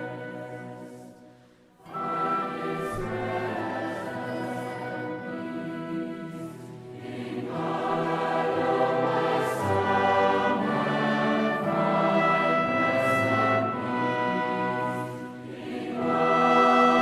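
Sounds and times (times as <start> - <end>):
choir singing: 0.0 - 17.0.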